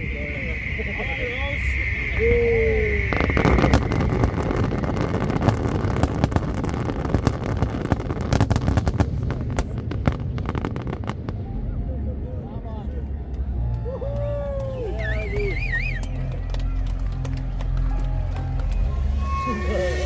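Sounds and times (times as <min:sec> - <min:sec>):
fireworks bangs and crackles: 0:00.0 - 0:11.8, 0:13.3 - 0:20.0.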